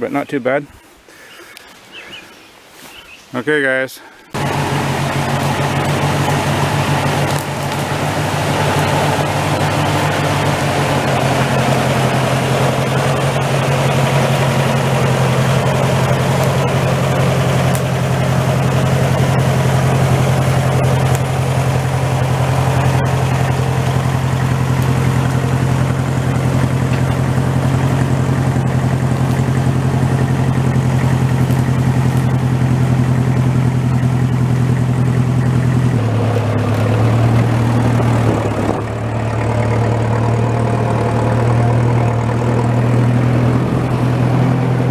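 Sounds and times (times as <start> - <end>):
tractor engine running: 4.3 - 44.9.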